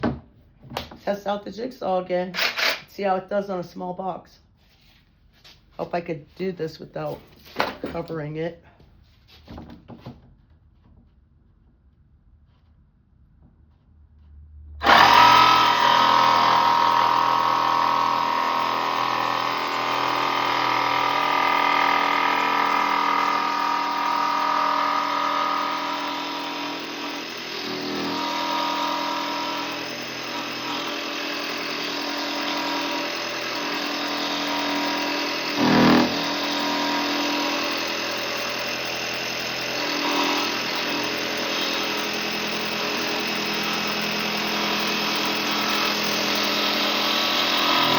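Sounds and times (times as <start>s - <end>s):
electric jigsaw cutting: 2.4s - 2.9s, 14.8s - 47.9s.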